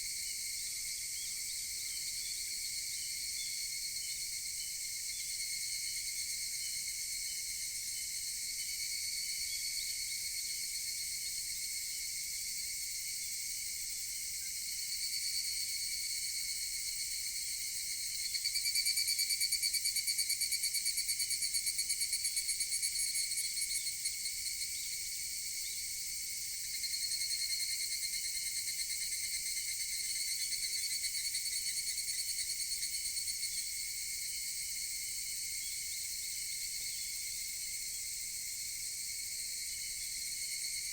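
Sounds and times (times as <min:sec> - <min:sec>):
cicada chorus: 0:00.0 - 0:40.9
cicada pulsing call: 0:15.1 - 0:25.8.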